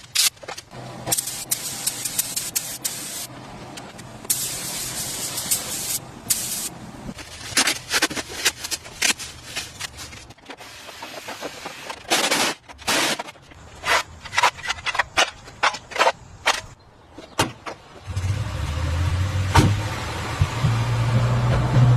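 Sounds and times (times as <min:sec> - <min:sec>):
hissing spray: 0:01.1 - 0:03.3, 0:04.3 - 0:06.7.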